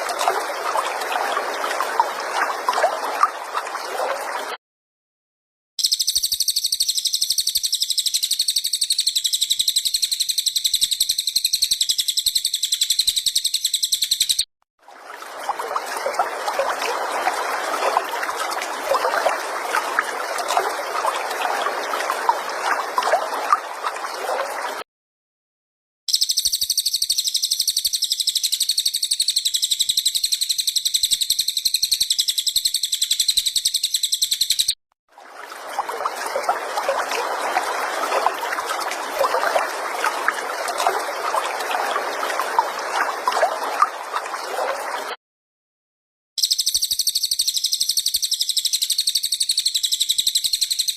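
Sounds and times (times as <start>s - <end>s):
water trickling: 0.0s - 4.5s, 14.9s - 24.8s, 35.1s - 45.1s
bird trilling: 5.8s - 14.4s.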